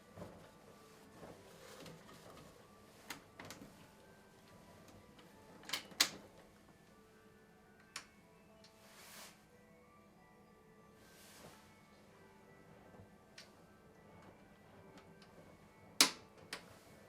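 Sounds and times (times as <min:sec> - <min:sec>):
toy washing machine clicks and knocks: 0:16.0 - 0:16.7.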